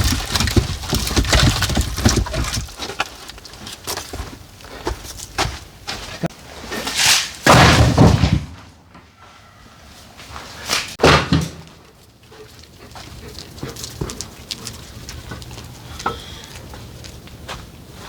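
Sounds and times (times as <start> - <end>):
heavy clattering knocks and thuds: 0.0 - 3.1, 7.4 - 8.8.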